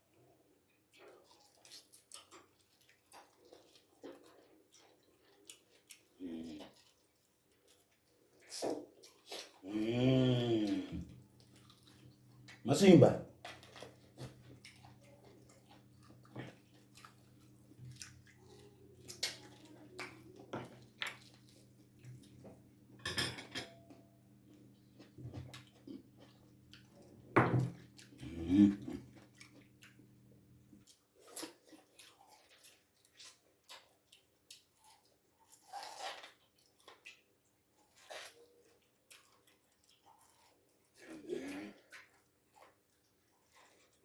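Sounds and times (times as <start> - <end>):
person chewing: 0.9 - 12.6, 13.4 - 23.0, 23.7 - 44.0
cutlery clinking on a dish: 23.0 - 24.0.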